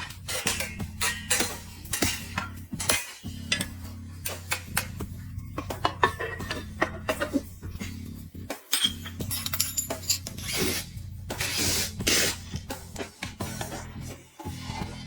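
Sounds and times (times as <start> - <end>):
metal parts clinking: 8.7 - 10.8.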